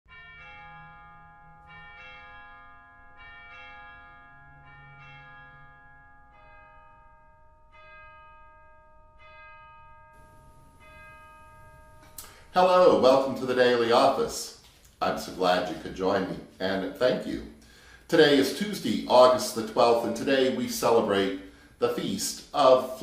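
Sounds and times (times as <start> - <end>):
bells ringing single notes: 0.1 - 12.6.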